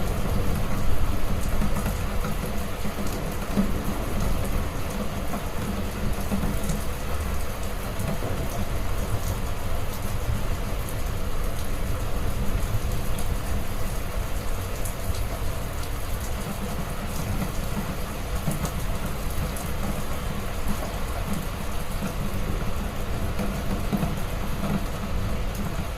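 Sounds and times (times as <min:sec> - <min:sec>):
heavy rain: 0:00.0 - 0:25.9
raindrop ticks: 0:10.8 - 0:25.9.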